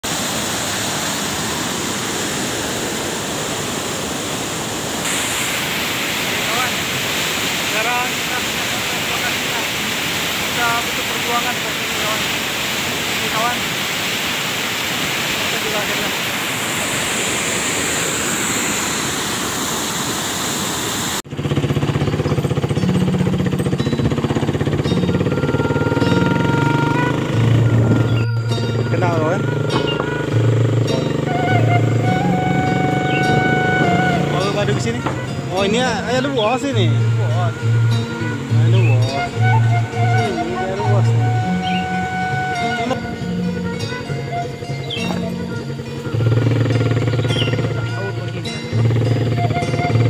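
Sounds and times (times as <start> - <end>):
steady rushing noise: 0.0 - 28.8
waterfall pouring: 0.0 - 43.7
motorcycle engine running: 21.3 - 34.4, 45.0 - 50.0.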